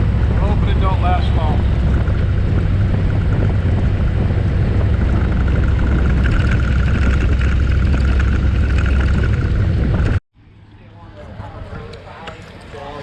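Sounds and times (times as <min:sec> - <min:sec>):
wind noise on microphone: 0:00.0 - 0:10.2
motorcycle engine rumble: 0:00.0 - 0:13.0.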